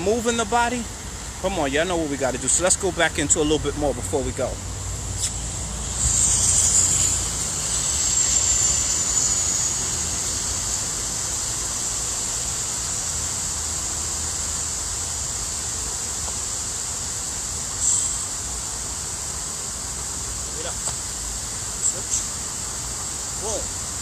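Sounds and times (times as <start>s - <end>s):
high-pitched whine: 0.0s - 19.2s.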